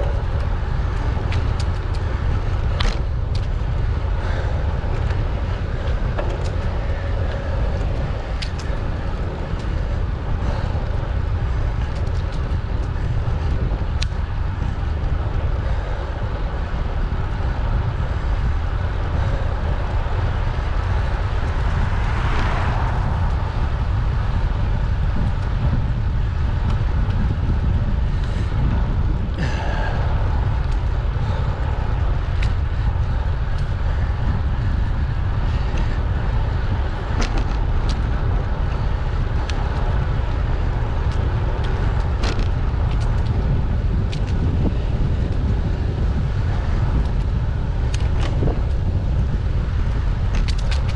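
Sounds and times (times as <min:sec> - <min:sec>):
bicycle road noise: 0:00.0 - 0:50.9
wind on microphone: 0:00.0 - 0:50.9.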